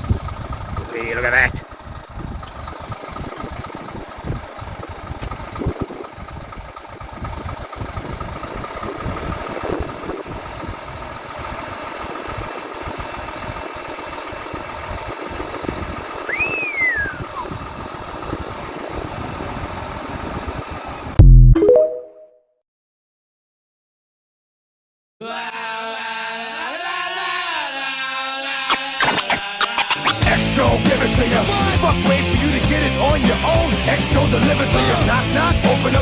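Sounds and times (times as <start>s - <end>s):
truck engine running: 0.0s - 21.4s, 29.7s - 36.0s
brief rising squeal: 28.7s - 30.2s.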